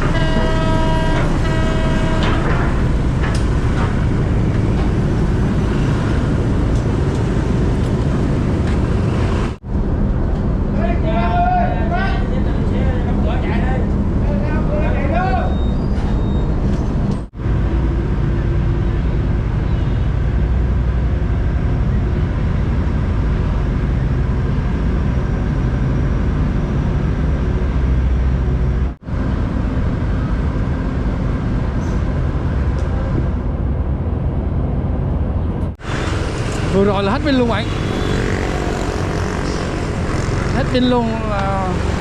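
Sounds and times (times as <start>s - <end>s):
road and engine noise: 0.0s - 42.0s.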